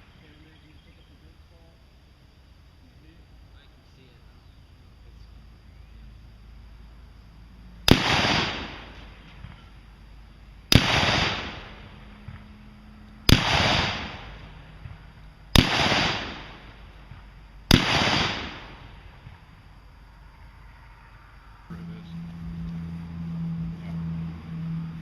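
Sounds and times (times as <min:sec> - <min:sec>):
gunshots with echo: 0:07.9 - 0:09.0, 0:10.7 - 0:12.4, 0:13.3 - 0:14.4, 0:15.6 - 0:16.7, 0:17.7 - 0:18.9.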